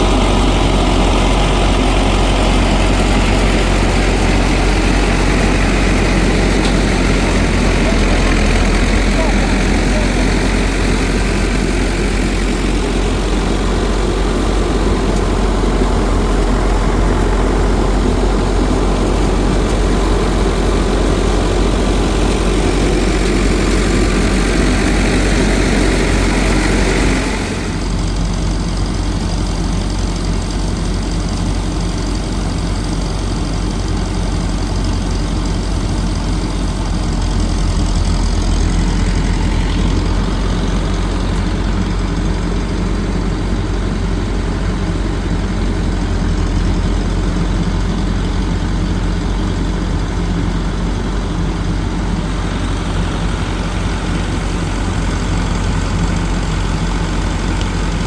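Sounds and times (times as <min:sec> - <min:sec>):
motor engine humming: 0:00.0 - 0:58.0.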